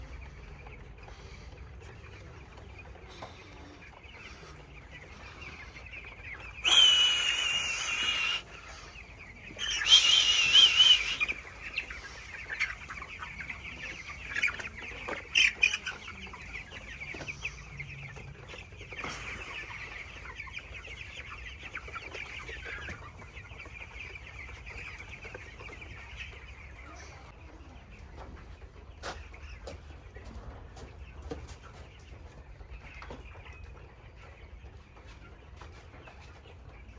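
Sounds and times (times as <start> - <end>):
chicks peeping: 0.0 - 36.9
shrill wavering cries: 6.6 - 8.5, 9.6 - 11.3.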